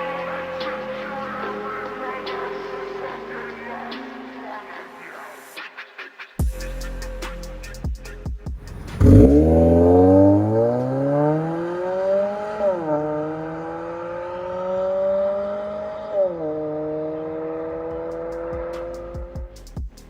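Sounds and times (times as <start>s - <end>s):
car engine accelerating: 8.6s - 19.5s.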